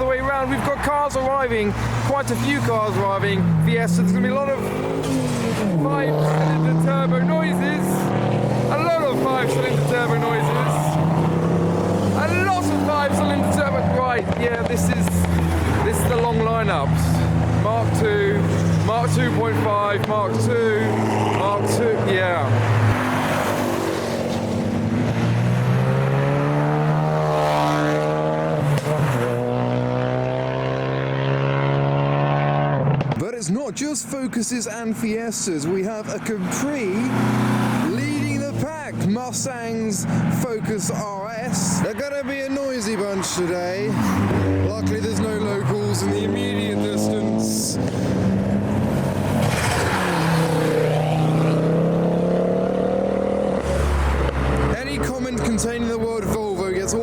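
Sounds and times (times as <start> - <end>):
car engine revving: 0.0 - 33.2, 35.8 - 57.0
car engine driving past: 46.7 - 54.8.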